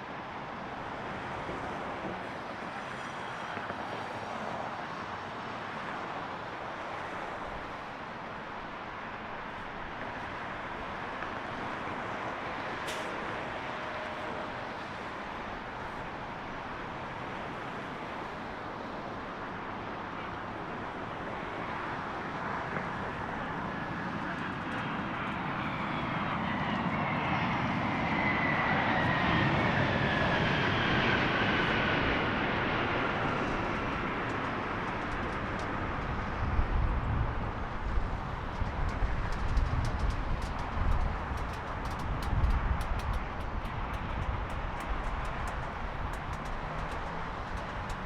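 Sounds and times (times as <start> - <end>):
jet engines passing: 0.0 - 48.0
low rumbling gusts: 28.9 - 48.0.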